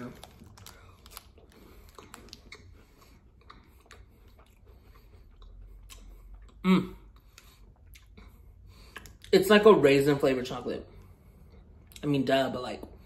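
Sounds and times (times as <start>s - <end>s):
faint crunches and mouth clicks: 0.0s - 8.2s.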